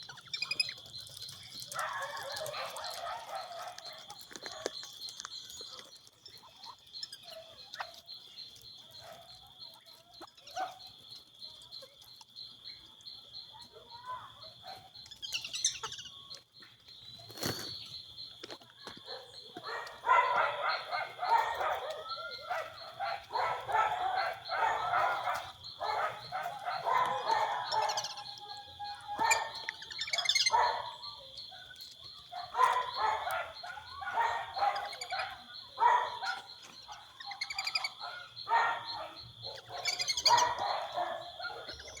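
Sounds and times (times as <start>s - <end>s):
ducks calling: 18.9s - 31.3s, 32.1s - 42.0s.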